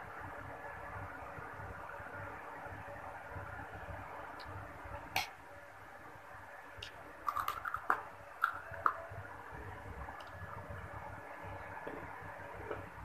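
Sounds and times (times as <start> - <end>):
steady low hum: 0.0 - 13.0
crunching prawn crackers: 7.3 - 9.0.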